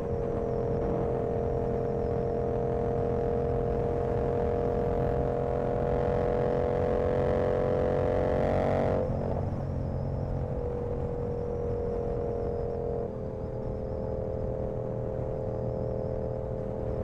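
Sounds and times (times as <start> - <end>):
motorcycle engine running: 0.0 - 17.0
road and wind rumble: 0.0 - 17.0.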